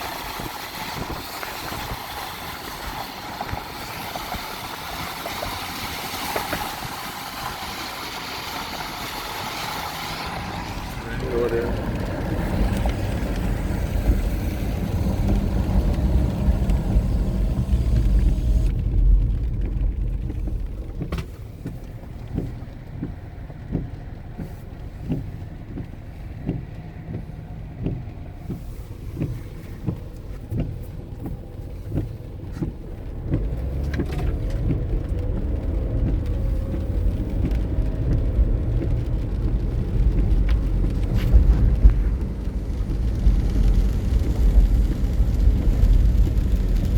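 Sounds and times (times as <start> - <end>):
car engine and tyres rumbling: 0.0 - 46.9
soft regular knocks: 18.9 - 36.8.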